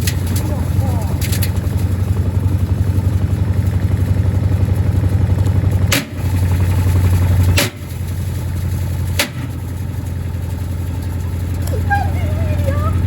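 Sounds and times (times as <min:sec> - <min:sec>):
washing machine motor humming: 0:10.6 - 0:13.0.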